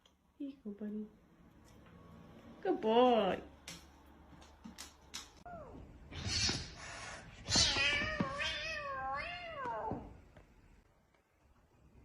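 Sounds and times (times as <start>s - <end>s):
cat meowing: 7.4s - 10.0s.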